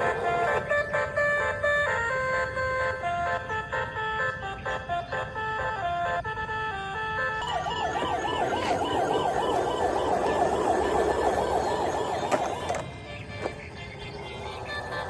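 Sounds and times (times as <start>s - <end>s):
electronic toy siren warbling: 6.5s - 13.5s, 14.1s - 15.0s.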